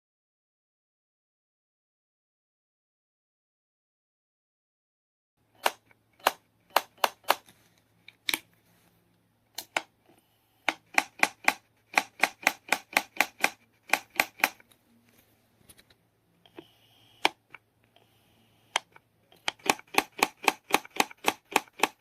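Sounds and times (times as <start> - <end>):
faint electrical hum: 5.4 - 22.0
sharp mechanical clicks: 5.6 - 7.4, 10.6 - 14.6, 16.5 - 18.1, 18.7 - 22.0.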